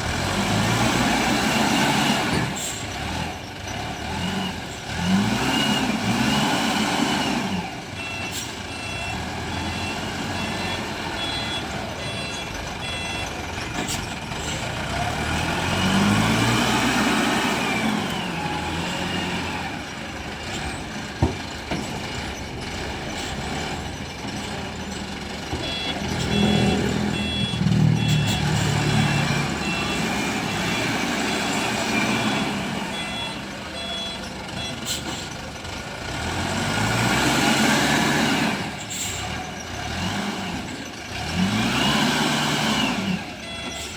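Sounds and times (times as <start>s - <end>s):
diesel engine revving: 0.0s - 43.9s
reversing alarm beeping: 8.0s - 14.6s, 23.0s - 35.4s, 41.3s - 43.9s.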